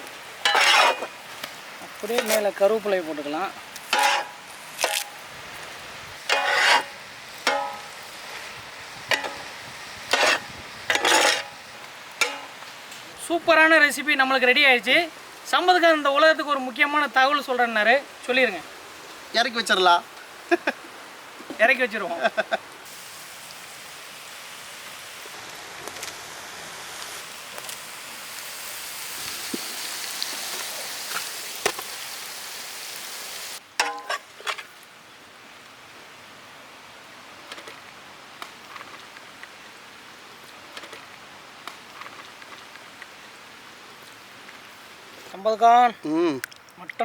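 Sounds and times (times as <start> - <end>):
food sizzling in a pan: 0.0 - 12.9, 22.3 - 34.2
person speaking: 2.0 - 3.6, 21.5 - 22.5, 45.3 - 47.0.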